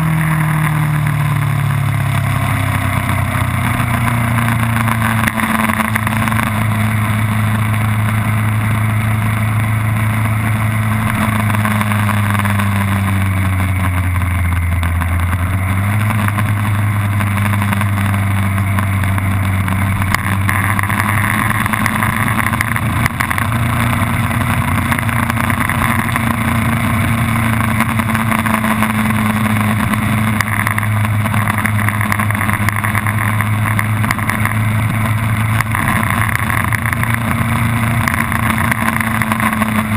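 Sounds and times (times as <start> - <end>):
dense rushing noise: 0.0 - 39.9
race car engine at speed: 0.0 - 39.9.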